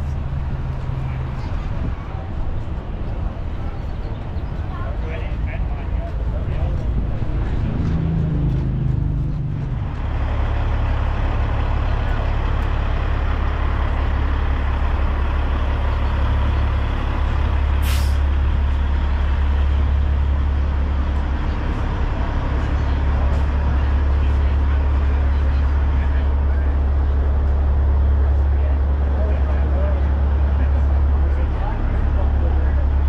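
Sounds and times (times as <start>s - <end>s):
diesel truck engine idling: 0.0s - 33.0s
air brake hiss: 17.8s - 18.2s.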